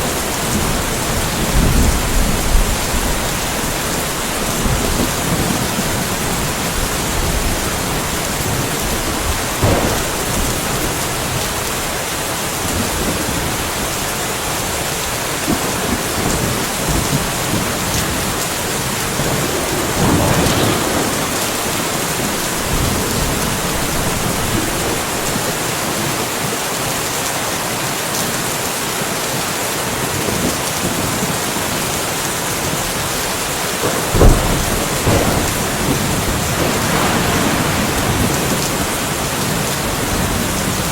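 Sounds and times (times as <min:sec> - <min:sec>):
sharp crack of thunder: 0:00.0 - 0:13.9, 0:15.4 - 0:25.8, 0:33.8 - 0:40.9
thunder rumbling: 0:00.0 - 0:26.2, 0:32.8 - 0:40.9
steady rainfall: 0:00.0 - 0:40.9.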